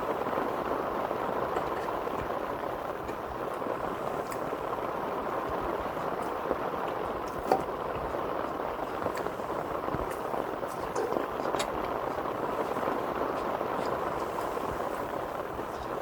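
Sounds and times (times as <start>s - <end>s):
heavy rain on tent fabric: 0.0s - 16.0s.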